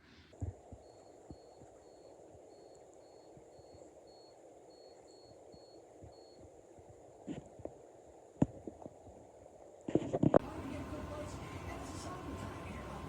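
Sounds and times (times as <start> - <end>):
faint high beeps: 0.8 - 6.5.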